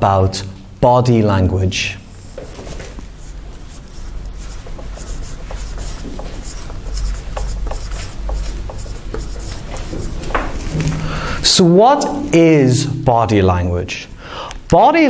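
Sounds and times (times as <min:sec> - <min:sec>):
steady low hum: 0:00.0 - 0:14.7
pen scratching on a board: 0:02.3 - 0:10.7.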